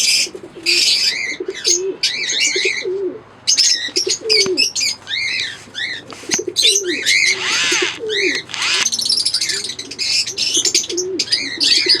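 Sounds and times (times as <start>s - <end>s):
harsh rasping bird calls: 5.2s - 9.0s.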